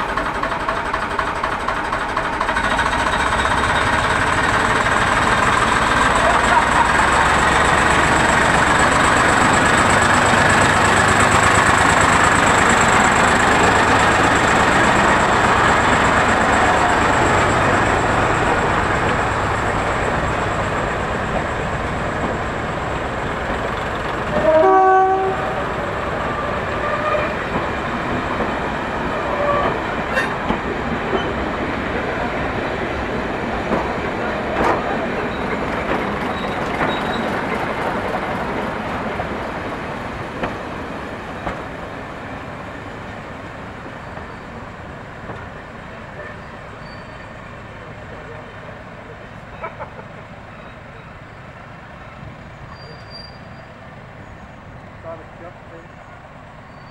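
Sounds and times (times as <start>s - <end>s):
diesel locomotive engine rumble: 0.0s - 56.9s
train horn blast: 24.3s - 25.7s, 26.4s - 27.4s
wheels clicking over rail joints: 33.7s - 38.8s.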